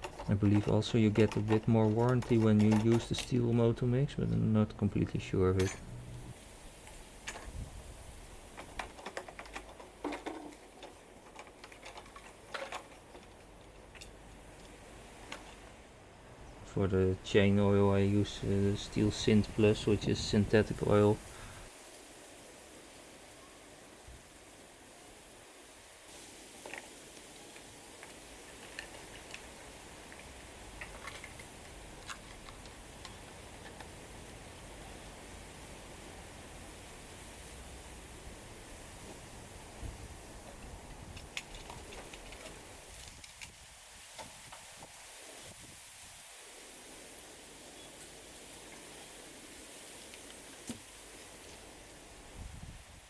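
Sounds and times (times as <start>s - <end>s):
containers clicking and knocking: 0.0s - 4.5s, 8.6s - 14.2s
low background hum: 0.0s - 6.4s.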